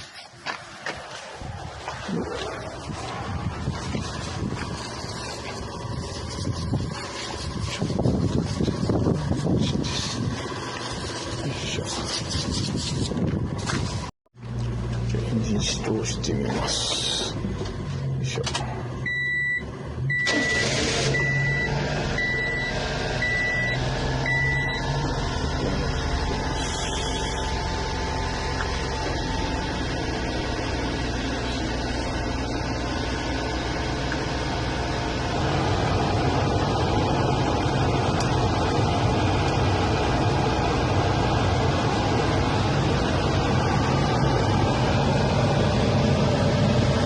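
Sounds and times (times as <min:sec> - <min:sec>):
truck engine starting and idling: 0:00.0 - 0:47.0
high warning beep: 0:19.1 - 0:24.9.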